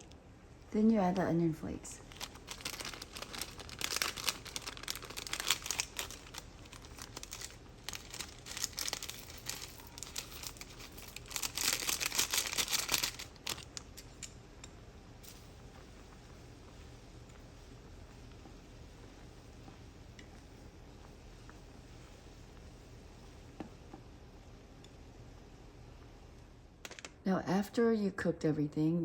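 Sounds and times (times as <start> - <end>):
plastic packet crinkling: 2.0 - 14.2.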